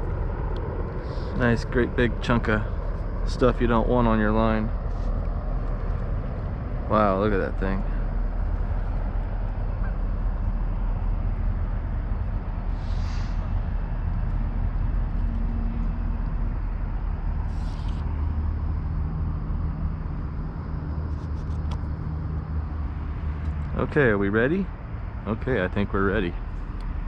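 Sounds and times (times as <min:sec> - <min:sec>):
deep rumble: 0:00.0 - 0:27.0
hissing swishes: 0:12.7 - 0:13.7, 0:17.4 - 0:18.1.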